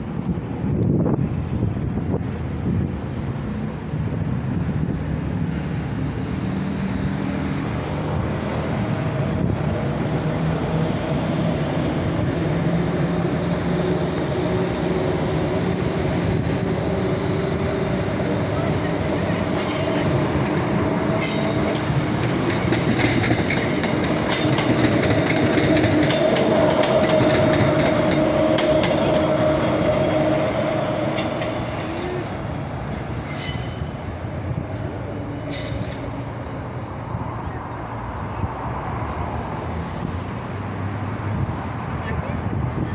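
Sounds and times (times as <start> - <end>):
train running on rails: 0.0 - 42.9
wheels clicking over rail joints: 18.7 - 29.8.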